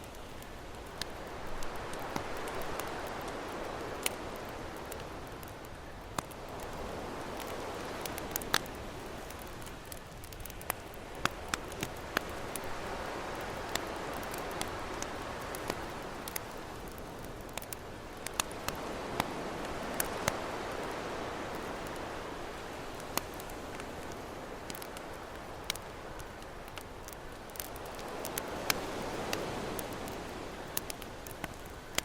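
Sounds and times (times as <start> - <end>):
campfire crackling and popping: 0.0 - 32.0
ocean waves: 11.2 - 26.2.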